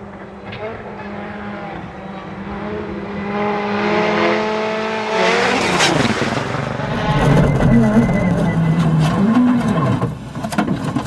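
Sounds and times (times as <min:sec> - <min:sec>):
rally car passing at speed: 0:00.0 - 0:09.8.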